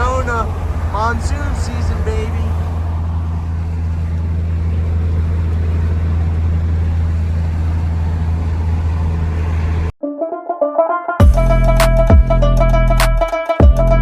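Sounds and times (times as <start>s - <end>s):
vehicle engine hum: 0.0s - 10.0s
road noise: 0.0s - 14.0s.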